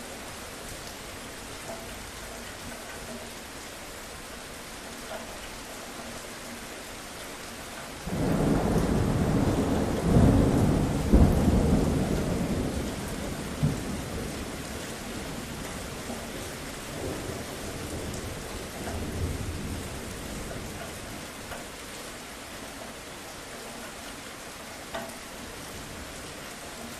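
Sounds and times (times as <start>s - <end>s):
steady rain: 0.0s - 26.9s
thunderclap rumbling: 8.0s - 16.1s.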